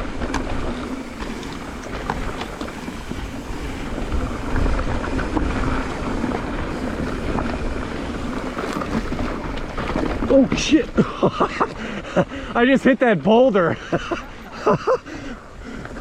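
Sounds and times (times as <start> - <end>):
wind rumble on microphone: 0.0 - 11.0
bike rattling: 0.0 - 16.0
bike tyres rolling over dirt: 0.0 - 16.0.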